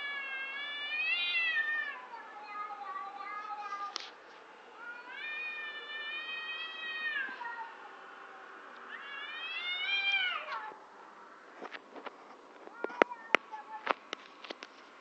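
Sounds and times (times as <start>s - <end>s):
cats yowling: 0.0s - 4.0s, 4.8s - 7.9s, 8.9s - 10.8s.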